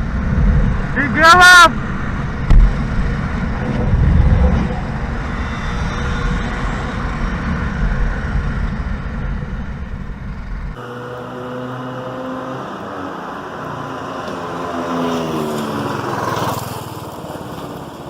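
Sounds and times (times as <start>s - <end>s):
wind rumble on microphone: 0.0s - 10.8s
motorcycle engine: 1.7s - 18.0s.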